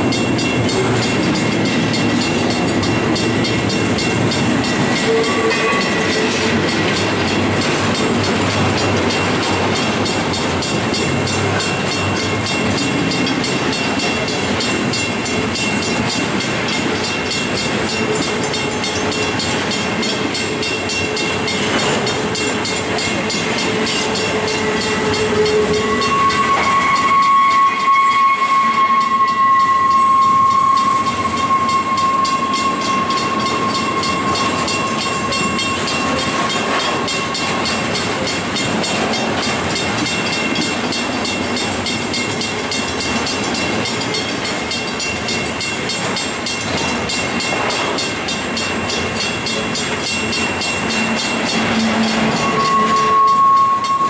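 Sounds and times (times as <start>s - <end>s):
wheels squealing: 20.8s - 40.7s, 50.1s - 54.0s.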